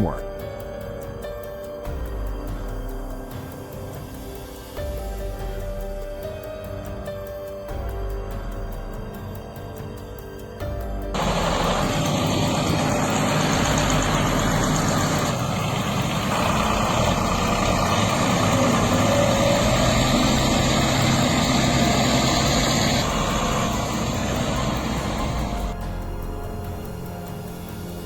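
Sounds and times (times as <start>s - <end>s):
heavy vehicle engine running: 11.1s - 28.0s.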